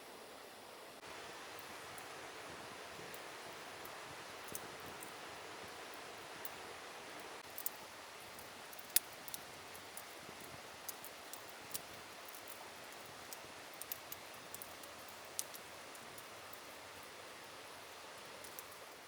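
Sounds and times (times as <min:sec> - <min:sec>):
campfire crackling and popping: 0:01.0 - 0:19.0.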